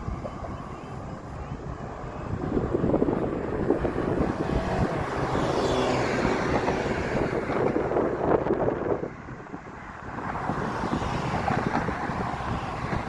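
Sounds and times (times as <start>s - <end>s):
vehicle passing with whine: 0.0s - 13.0s
wind rumbling on microphone: 0.0s - 13.0s.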